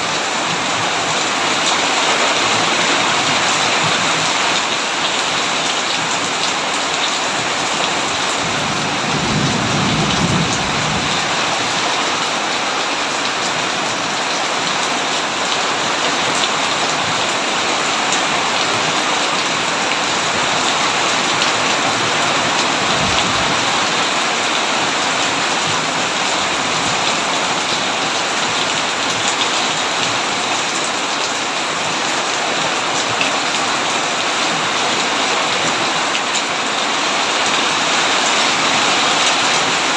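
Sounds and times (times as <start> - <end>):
heavy rain on a tin roof: 0.0 - 39.9
low rumble of thunder: 8.3 - 11.8, 22.7 - 23.8.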